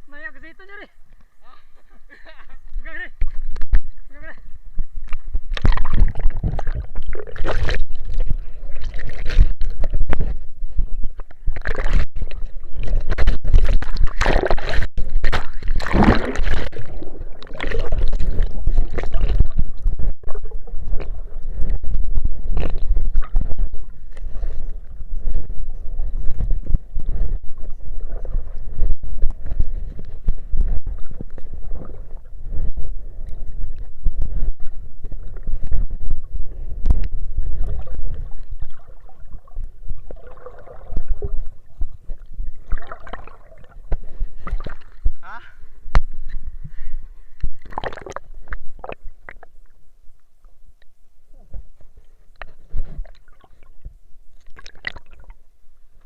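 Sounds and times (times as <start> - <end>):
water sloshing and gurgling: 1.0 - 56.0
knocks and splashes: 5.0 - 10.4, 11.2 - 25.6, 54.4 - 55.4.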